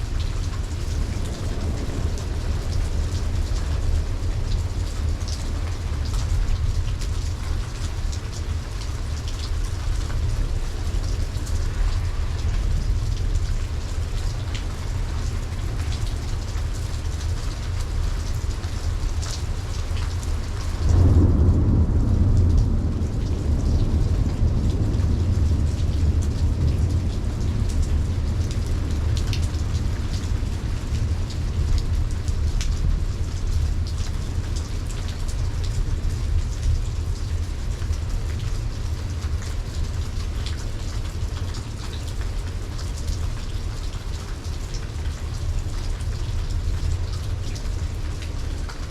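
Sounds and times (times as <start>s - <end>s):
thunder rumbling: 0.0s - 18.0s, 19.4s - 37.7s
heavy raindrops striking: 0.0s - 48.9s
steady rain falling: 0.0s - 48.9s.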